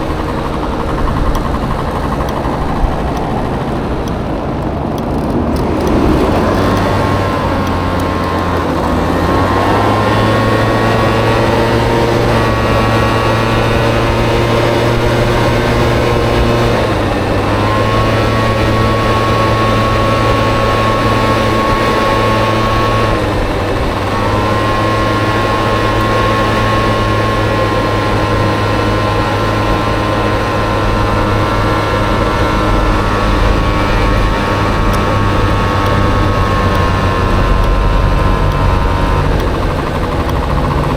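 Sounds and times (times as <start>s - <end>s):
scooter engine revving: 0.0s - 40.9s.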